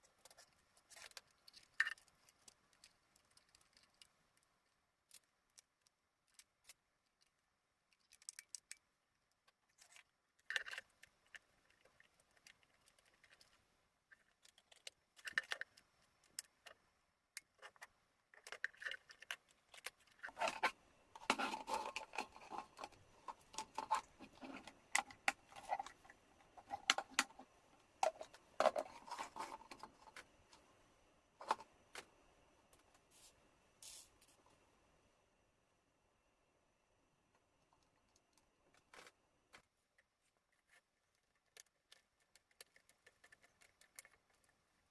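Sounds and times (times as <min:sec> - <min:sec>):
small hard parts clicking and scraping: 0:00.0 - 0:30.7, 0:31.4 - 0:32.1, 0:37.7 - 0:44.9.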